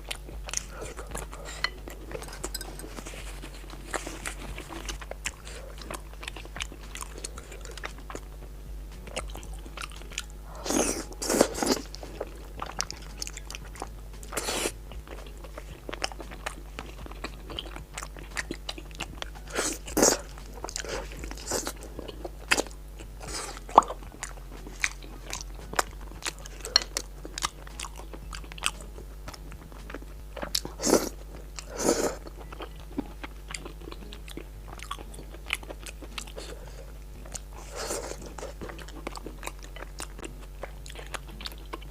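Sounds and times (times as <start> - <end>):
chewing and biting: 0.0 - 8.4, 9.0 - 41.9.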